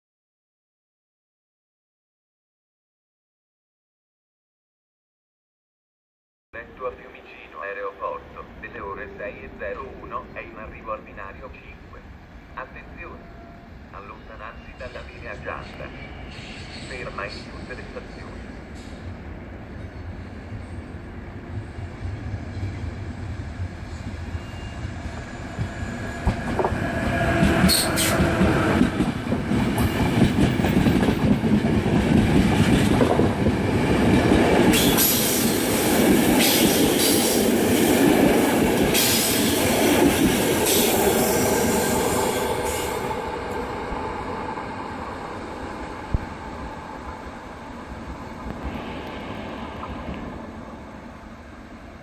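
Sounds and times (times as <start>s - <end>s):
train rumble: 6.6s - 52.0s
clack of rail joints: 25.6s - 35.5s.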